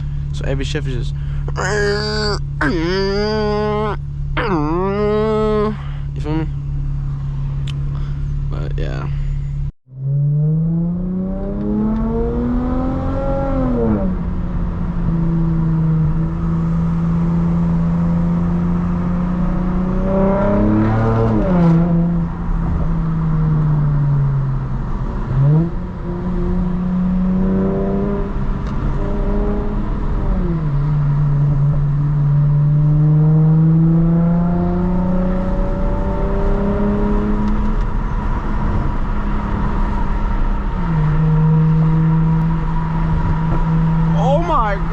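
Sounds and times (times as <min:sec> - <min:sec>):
car exhaust revving through gears: 0:09.9 - 0:44.9.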